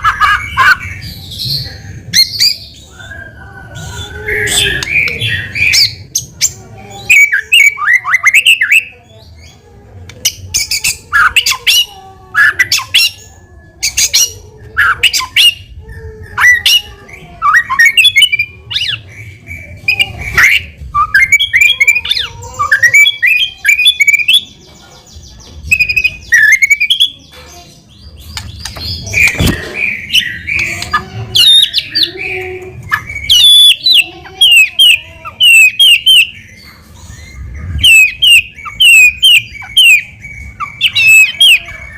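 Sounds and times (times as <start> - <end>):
songbird whistling and clicking: 4.7 - 5.2, 28.3 - 33.9.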